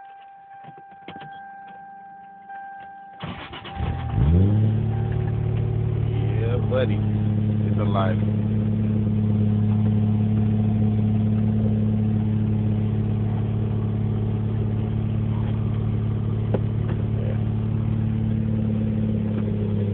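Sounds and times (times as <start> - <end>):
car engine idling: 0.1 - 19.9.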